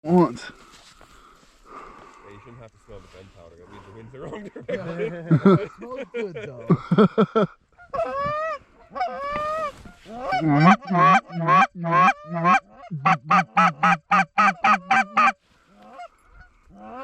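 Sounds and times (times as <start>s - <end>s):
goose honking and clucking: 7.8s - 17.0s.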